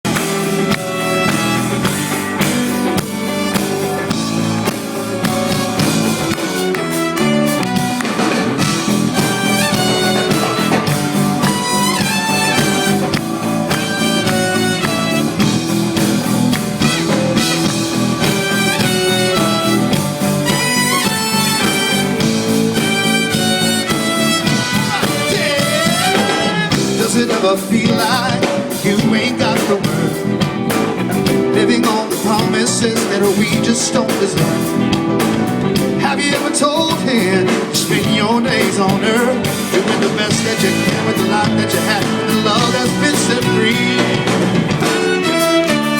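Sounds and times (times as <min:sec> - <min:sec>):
live band playing upbeat instrumental: 0:00.0 - 0:45.9
brass horn section: 0:00.1 - 0:27.2, 0:40.3 - 0:45.9.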